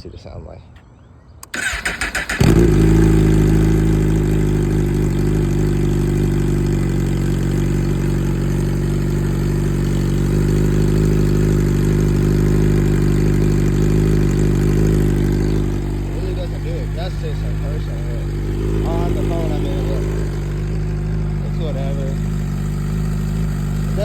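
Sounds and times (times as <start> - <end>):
starter motor cranking: 1.4 - 3.9
loud motorcycle engine idling: 1.6 - 24.0.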